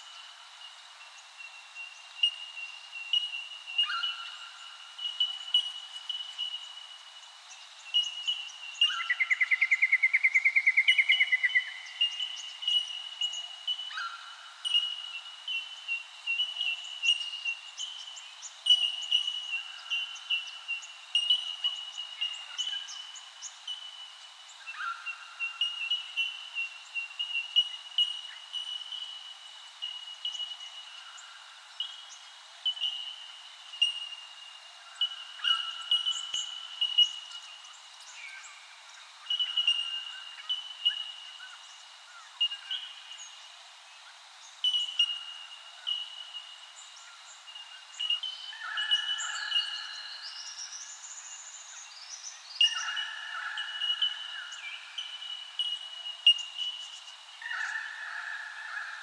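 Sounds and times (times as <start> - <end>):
birds chirping and calling: 57.4 - 59.0.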